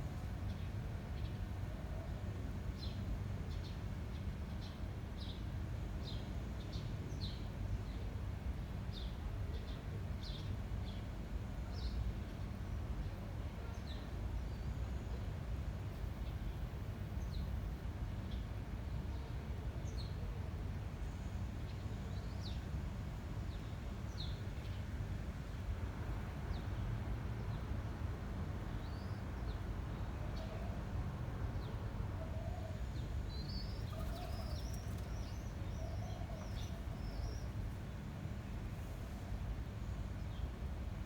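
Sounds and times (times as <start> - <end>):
small birds chirping: 33.0 - 37.6.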